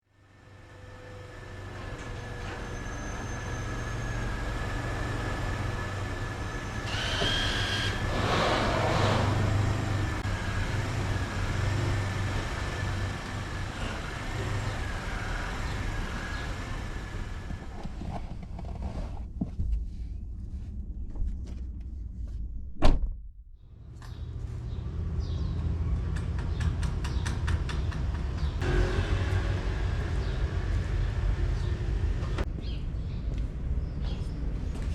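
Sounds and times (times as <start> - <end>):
bicycle tyres and wind rumble: 1.5 - 22.6.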